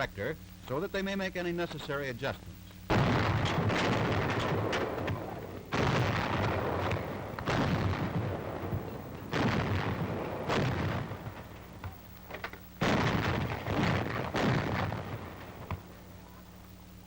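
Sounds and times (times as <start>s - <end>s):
antiaircraft guns firing: 2.9s - 16.2s.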